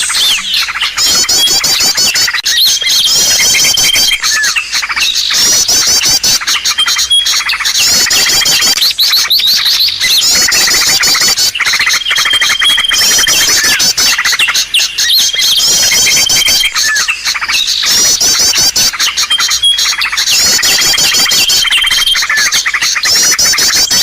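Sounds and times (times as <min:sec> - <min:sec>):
songbirds chirping and trilling: 0:00.0 - 0:24.0.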